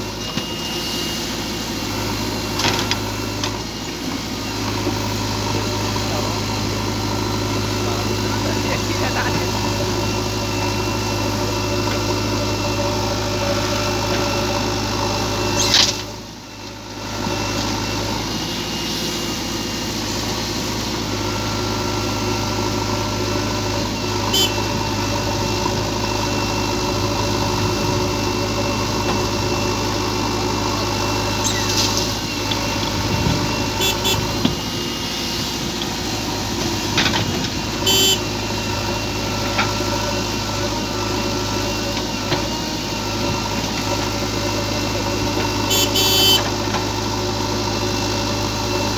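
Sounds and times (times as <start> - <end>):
heavy diesel engine running: 0.0 - 48.9
short high-pitched beeps: 24.3 - 24.6, 31.4 - 31.8, 33.8 - 34.4, 37.9 - 38.2, 45.7 - 46.4.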